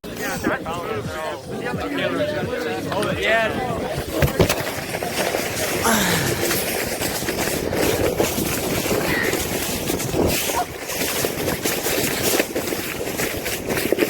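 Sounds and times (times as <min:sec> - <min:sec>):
wind buffeting microphone: 0:00.3 - 0:14.0
sled sliding over snow: 0:03.2 - 0:14.0.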